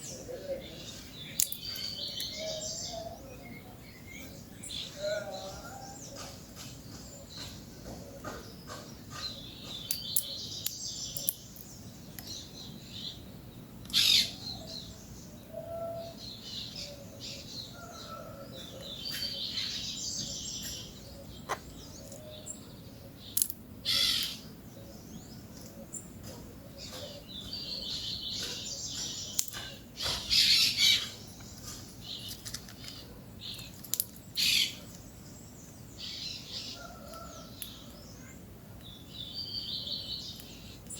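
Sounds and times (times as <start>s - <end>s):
parakeets chattering and calling: 16.7s - 25.1s, 25.8s - 35.4s.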